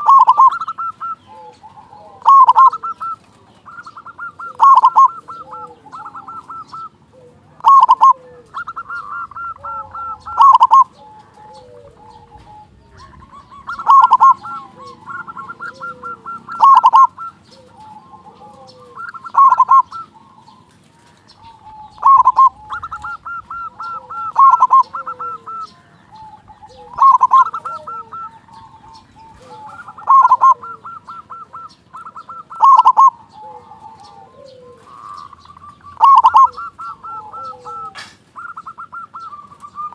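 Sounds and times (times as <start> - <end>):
dove cooing song: 0.0 - 39.9.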